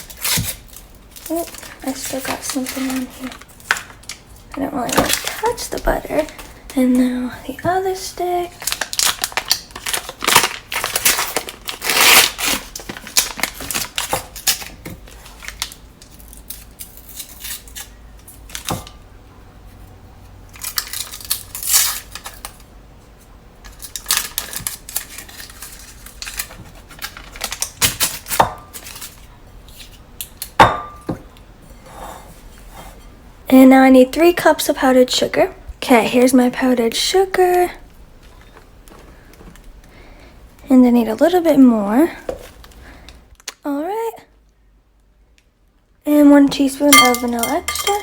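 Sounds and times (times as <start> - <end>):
wrapper rustling: 0.0 - 7.2, 7.8 - 18.7, 23.6 - 29.3
utensil clinking against bowl: 46.9 - 48.0.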